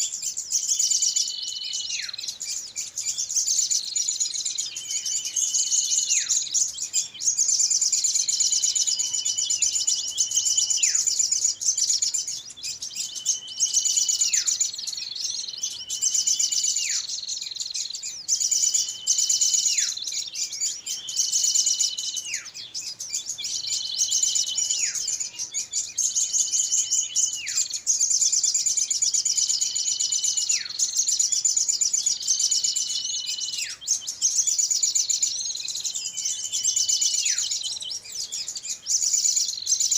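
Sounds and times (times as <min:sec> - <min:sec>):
high-pitched bird twittering: 0:00.0 - 0:39.9.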